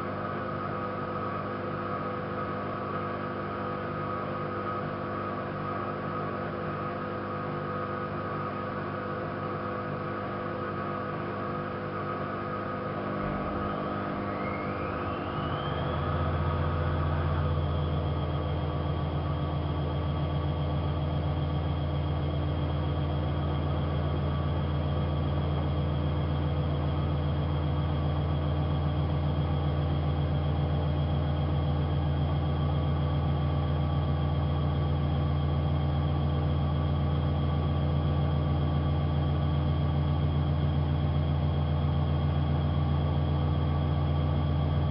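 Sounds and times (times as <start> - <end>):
washing machine spinning: 10.2 - 44.9.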